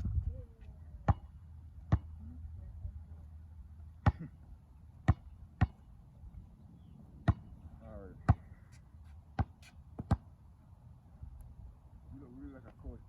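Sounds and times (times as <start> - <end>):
low background rumble: 0.0 - 8.7.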